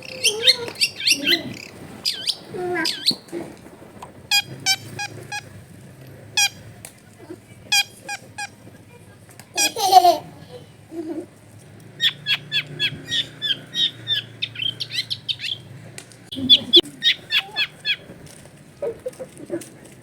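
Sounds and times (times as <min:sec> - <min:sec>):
shrike calling harsh notes: 0:04.3 - 0:05.4.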